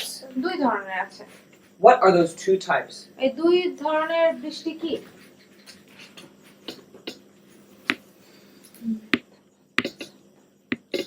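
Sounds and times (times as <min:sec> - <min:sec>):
faint steady hum: 0:00.0 - 0:11.0
sharp clicks and taps: 0:09.8 - 0:10.1, 0:10.7 - 0:11.0.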